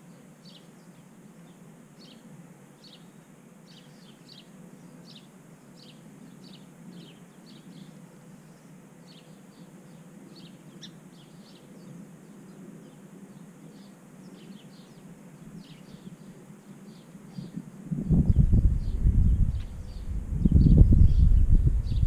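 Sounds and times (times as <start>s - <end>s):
small birds chirping: 0.0s - 22.0s
faint low rumble: 17.4s - 22.0s.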